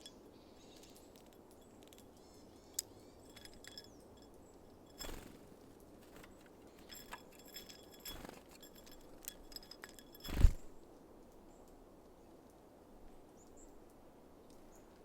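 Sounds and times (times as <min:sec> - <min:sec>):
birds pecking at feeder: 0:00.7 - 0:10.6
thin high bird chips: 0:04.9 - 0:05.4
wings fluttering: 0:04.9 - 0:10.8.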